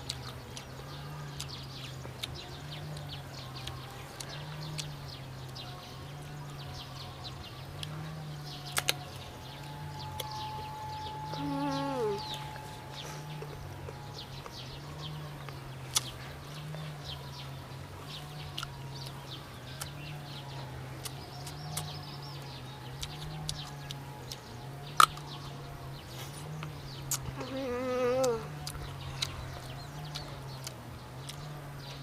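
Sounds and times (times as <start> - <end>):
mango crunching: 0.0 - 7.0, 7.7 - 32.0
steady low hum: 0.0 - 32.0
mouth clicks: 26.5 - 31.5.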